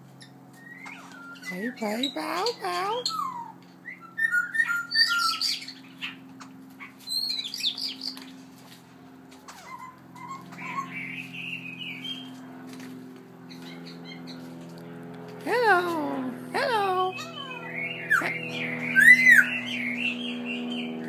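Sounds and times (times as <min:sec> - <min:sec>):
songbird whistling and chirping: 0:00.2 - 0:02.2, 0:03.0 - 0:06.2, 0:06.8 - 0:08.2, 0:09.5 - 0:12.4, 0:17.0 - 0:21.0.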